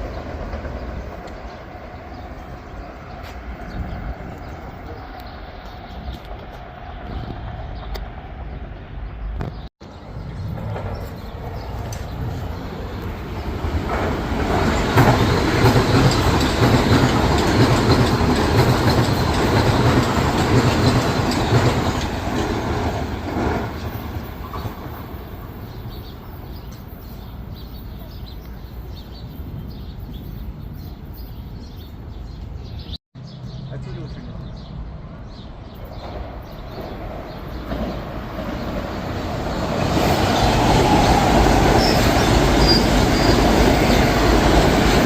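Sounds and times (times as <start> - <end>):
train rumble: 0.0 - 31.2, 33.9 - 45.0
wheels clacking over rail joints: 10.0 - 25.6, 35.8 - 45.0.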